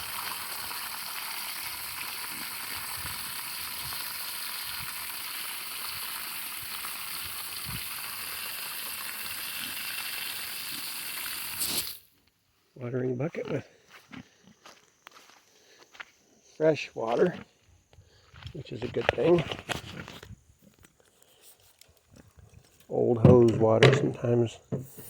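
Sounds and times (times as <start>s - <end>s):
hose water running into bucket: 0.0s - 12.1s.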